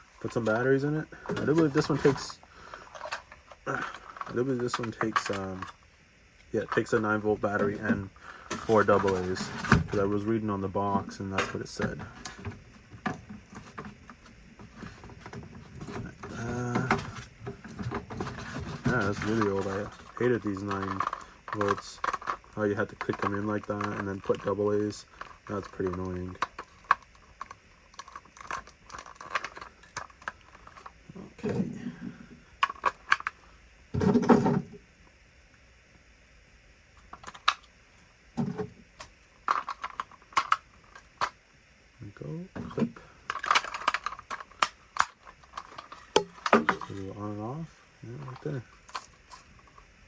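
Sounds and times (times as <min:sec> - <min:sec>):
plastic clicks of batteries handled: 0:11.4 - 0:31.0, 0:32.6 - 0:33.4, 0:37.0 - 0:37.7, 0:39.0 - 0:41.4, 0:43.3 - 0:47.0
plastic clicks and knocks: 0:42.6 - 0:47.0.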